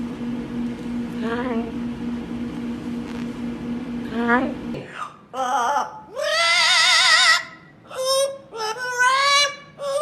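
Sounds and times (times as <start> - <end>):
parrot singing: 5.4 - 10.0.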